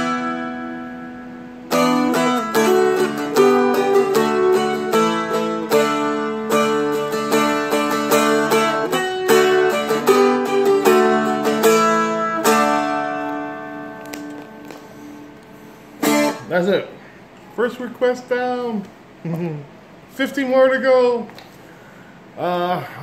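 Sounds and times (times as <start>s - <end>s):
dulcimer flatpicked: 1.7s - 15.3s, 16.0s - 16.7s.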